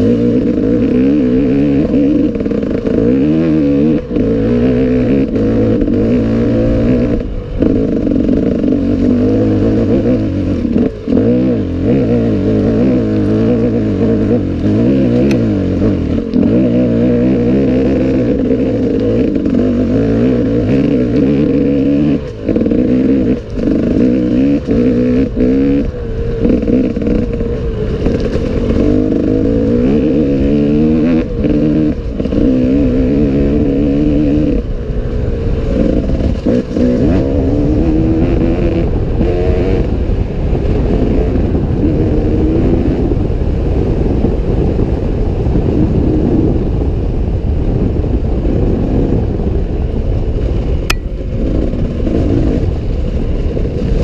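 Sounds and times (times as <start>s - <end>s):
motorcycle engine revving hard: 0.0s - 54.0s.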